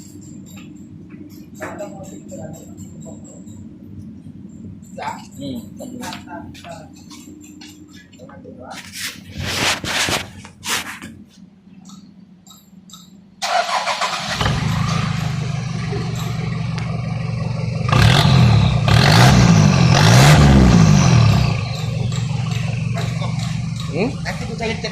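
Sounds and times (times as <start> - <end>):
car engine starting and revving: 13.4 - 24.4.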